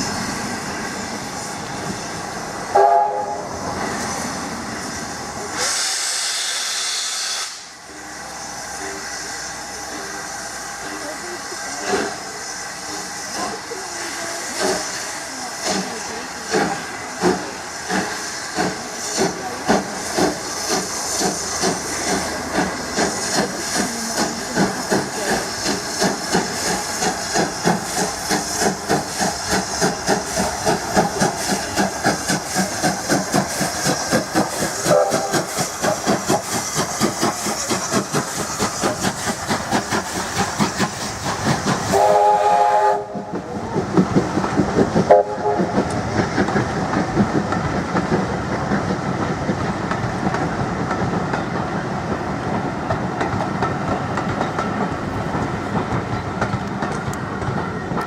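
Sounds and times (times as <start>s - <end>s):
steam hissing: 0.0s - 58.0s
steam whistle: 2.7s - 3.4s, 34.9s - 35.4s, 41.9s - 43.3s, 45.1s - 45.7s.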